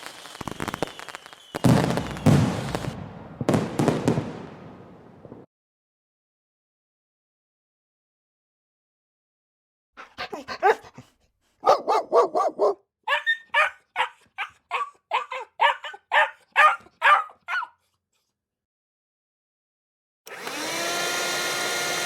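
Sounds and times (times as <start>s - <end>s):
dog barking: 10.0s - 17.9s.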